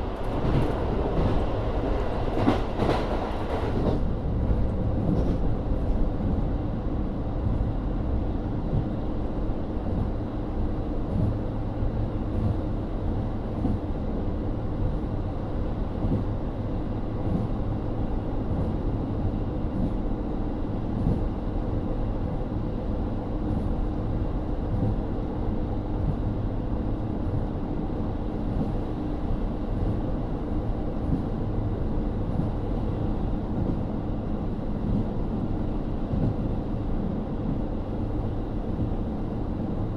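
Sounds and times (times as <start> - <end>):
wheels rumbling on rails: 0.0 - 39.9.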